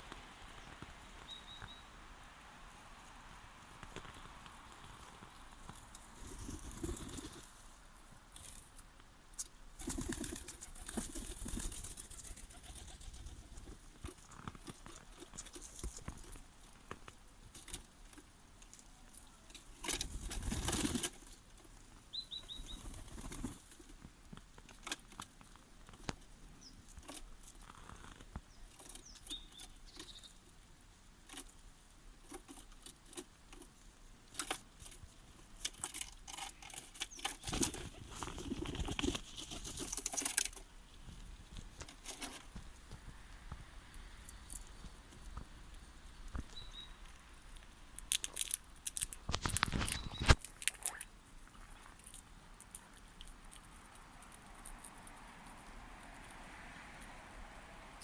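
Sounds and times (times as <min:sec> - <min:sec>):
high bird chirps: 0:00.6 - 0:01.9, 0:22.1 - 0:22.8, 0:29.0 - 0:30.4, 0:46.5 - 0:47.0, 0:49.8 - 0:50.4
wings flapping: 0:05.7 - 0:07.6, 0:09.8 - 0:13.9, 0:20.0 - 0:21.2, 0:22.5 - 0:23.8, 0:37.2 - 0:40.6.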